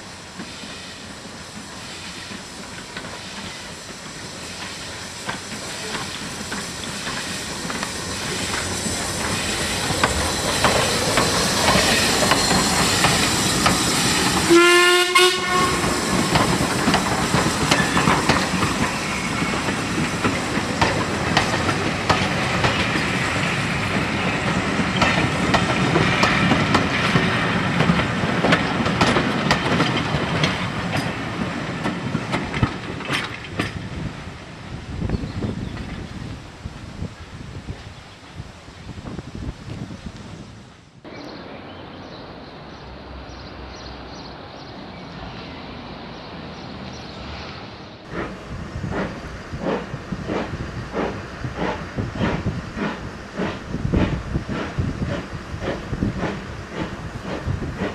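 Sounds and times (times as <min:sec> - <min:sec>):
steam train rumbling past: 0:00.0 - 0:57.9
steam locomotive whistle: 0:14.4 - 0:16.3.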